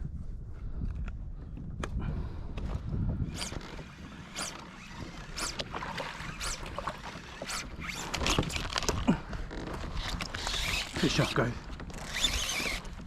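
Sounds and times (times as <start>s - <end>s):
fishing line swishing: 3.4s - 8.7s.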